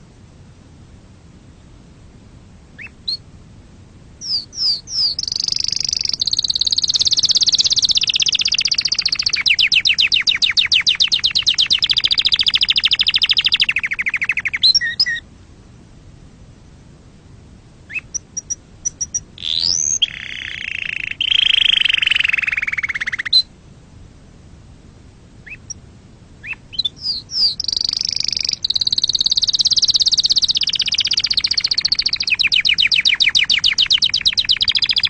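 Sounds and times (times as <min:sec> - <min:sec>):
canary singing: 0:02.8 - 0:03.2, 0:04.2 - 0:15.2, 0:17.9 - 0:23.5, 0:25.4 - 0:25.8, 0:26.4 - 0:35.0.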